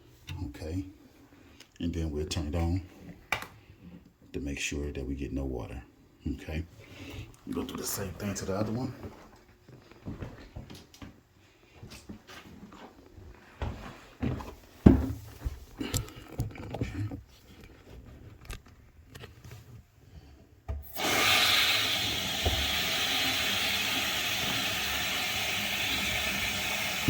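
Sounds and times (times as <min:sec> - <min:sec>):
water rushing from faucet: 0:20.9 - 0:27.0.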